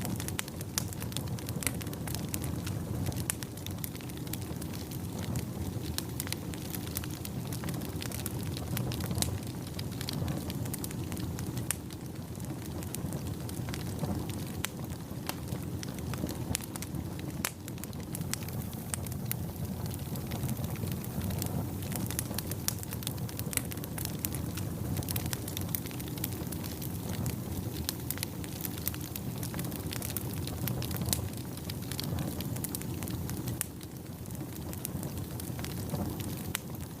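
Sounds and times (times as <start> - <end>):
low rush of flame: 0.0 - 37.0
wood fire crackling: 0.0 - 37.0
sharp snaps and pops: 12.6 - 33.9.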